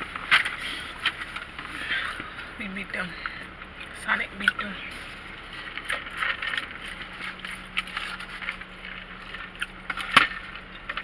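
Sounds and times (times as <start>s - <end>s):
rustling and crackling handling noises: 0.0s - 11.0s
sharp crackle: 3.1s - 11.0s.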